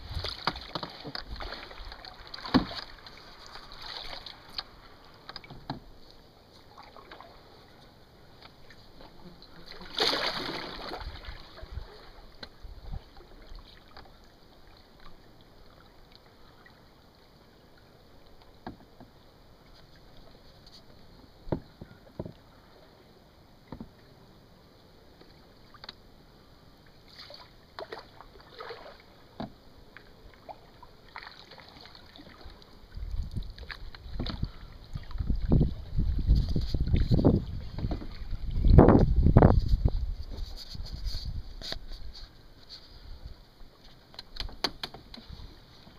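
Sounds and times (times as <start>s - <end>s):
paddle knocks and splashes: 0.0s - 5.9s, 8.4s - 14.2s, 18.6s - 19.2s, 27.1s - 29.6s, 30.4s - 42.2s
faint water noise: 0.0s - 45.9s.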